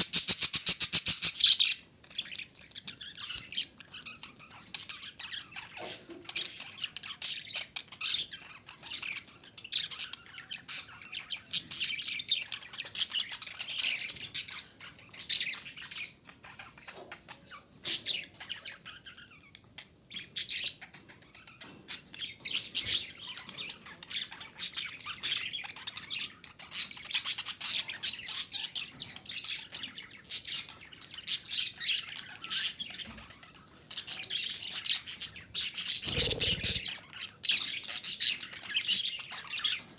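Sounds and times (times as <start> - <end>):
budgerigars chirping: 0.0 - 8.4, 34.1 - 37.0
budgerigar squawks: 36.1 - 36.8.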